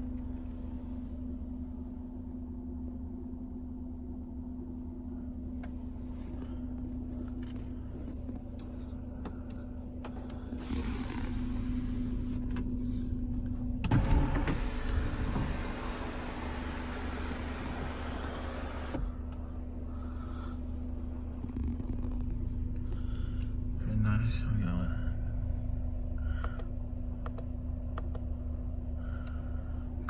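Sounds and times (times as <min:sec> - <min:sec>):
car engine idling: 0:04.4 - 0:21.4
electric sunroof motor running: 0:10.0 - 0:12.8, 0:13.8 - 0:19.7.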